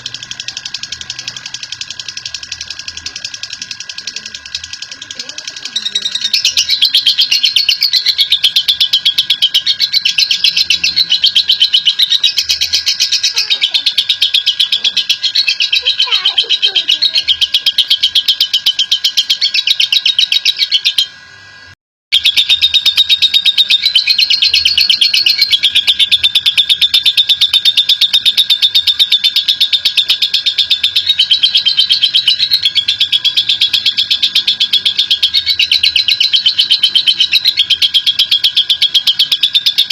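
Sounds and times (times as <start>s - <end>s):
lovebird chattering trill: 0.0s - 21.2s, 22.1s - 39.9s.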